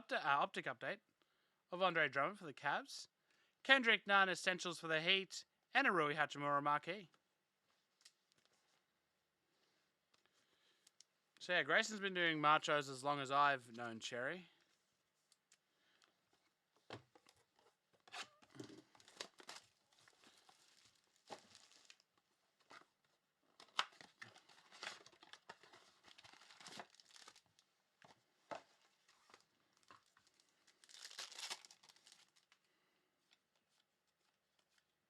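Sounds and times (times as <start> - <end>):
wrappers tearing and crinkling: 18.1 - 22.1, 23.6 - 27.6, 29.3 - 32.6.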